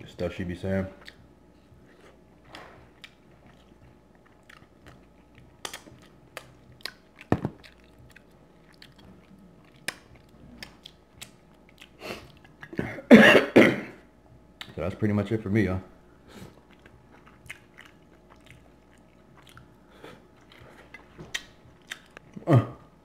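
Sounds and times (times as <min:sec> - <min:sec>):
sharp wet clicks and smacks: 0:01.0 - 0:01.3, 0:02.5 - 0:12.8, 0:14.6 - 0:14.8, 0:16.7 - 0:19.7, 0:20.4 - 0:22.3
close chewing and biting: 0:01.0 - 0:12.8, 0:16.4 - 0:22.4.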